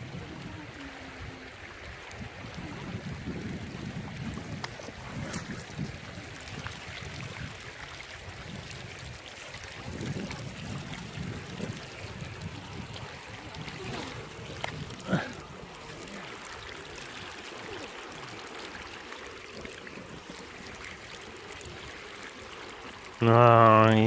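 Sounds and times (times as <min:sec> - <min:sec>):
wind on microphone: 0:00.0 - 0:17.4
stream water splashing: 0:00.0 - 0:24.0.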